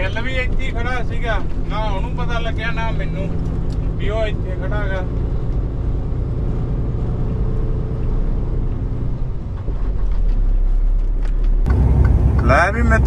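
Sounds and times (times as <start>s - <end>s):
truck diesel engine rumbling: 11.7s - 13.0s.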